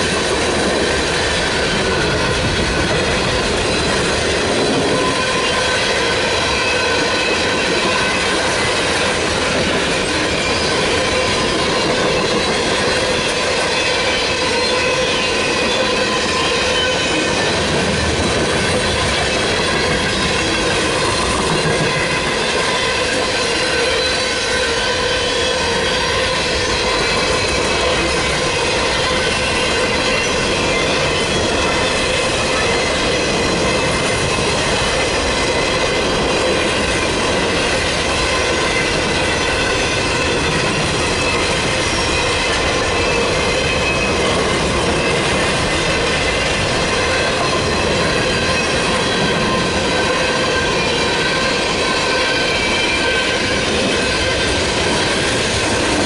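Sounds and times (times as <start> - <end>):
train wheels rumbling and clicking: 0.0 - 56.0.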